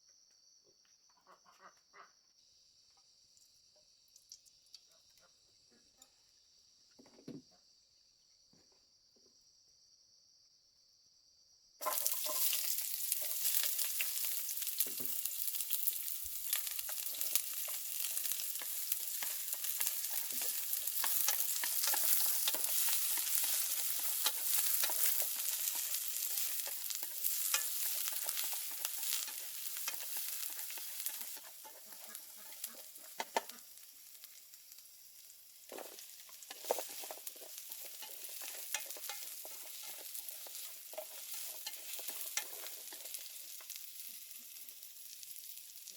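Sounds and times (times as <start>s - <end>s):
food sizzling in hot oil: 11.8s - 45.9s.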